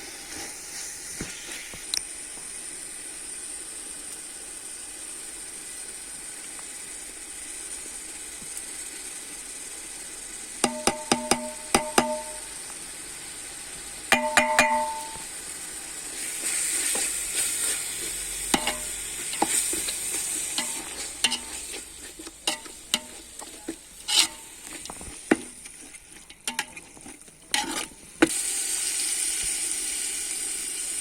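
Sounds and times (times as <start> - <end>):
food sizzling in hot oil: 0.0 - 31.0
spoon scraping against pot: 10.6 - 12.5, 14.1 - 15.2, 16.4 - 28.3.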